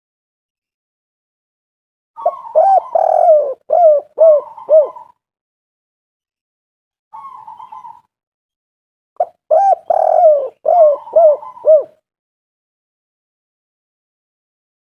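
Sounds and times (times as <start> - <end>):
dove cooing: 2.2 - 5.2, 7.1 - 8.1, 9.2 - 12.0.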